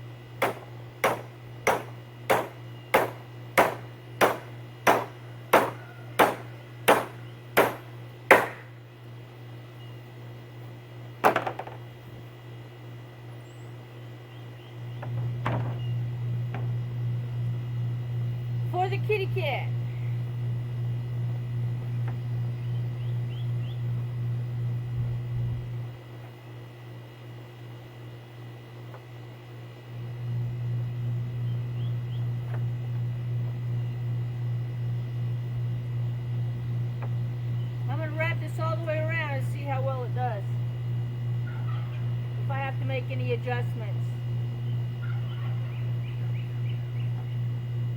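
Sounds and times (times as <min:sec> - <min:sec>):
steady low hum: 0:00.0 - 0:47.9
knock with rattling bounce: 0:00.4 - 0:08.7, 0:11.2 - 0:11.8.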